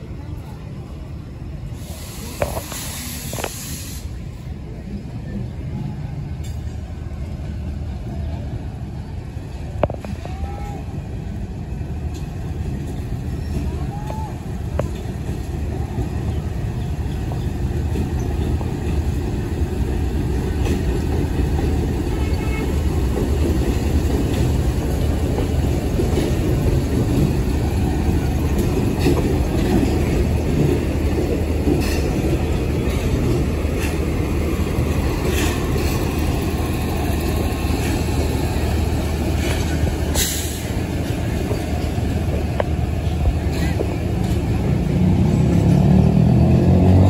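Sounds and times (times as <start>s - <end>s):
locomotive engine rumble: 0.0s - 47.0s
wheels clacking over rail joints: 11.9s - 47.0s.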